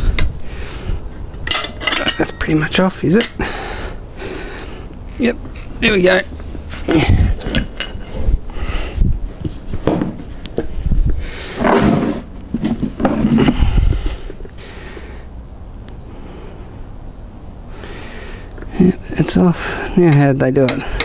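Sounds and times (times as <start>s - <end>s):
metal tyre levers clinking on rim: 1.4s - 2.5s, 6.9s - 8.3s.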